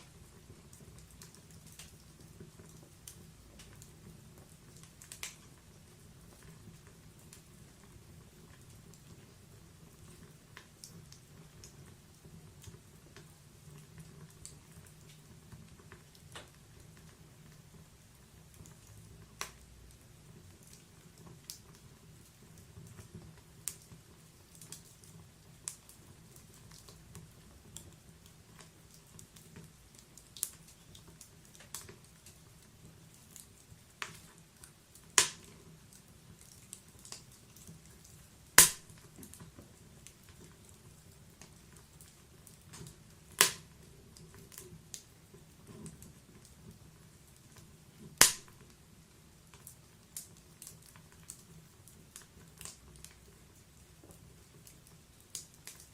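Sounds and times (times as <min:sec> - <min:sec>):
faint low hiss: 0:00.0 - 0:55.9
wood fire crackling and popping: 0:00.0 - 0:55.9.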